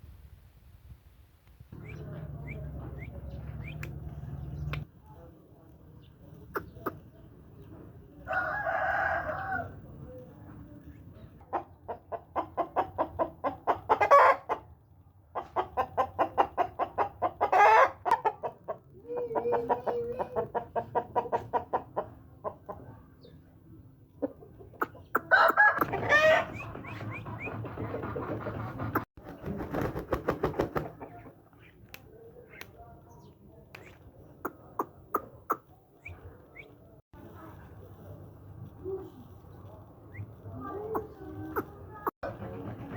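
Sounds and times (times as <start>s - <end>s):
chickens clucking rapidly: 6.3s - 8.0s, 11.0s - 23.0s, 24.0s - 36.8s, 40.0s - 42.9s
rooster crowing: 8.3s - 9.8s.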